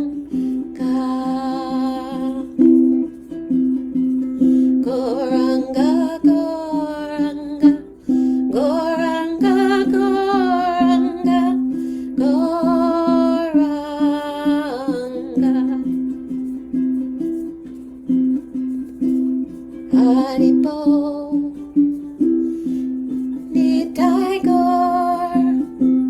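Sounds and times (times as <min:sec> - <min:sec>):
woman singing a chant: 0:00.0 - 0:02.8, 0:04.8 - 0:16.0, 0:19.9 - 0:21.8, 0:23.5 - 0:25.7
strummed string instrument: 0:00.0 - 0:26.0.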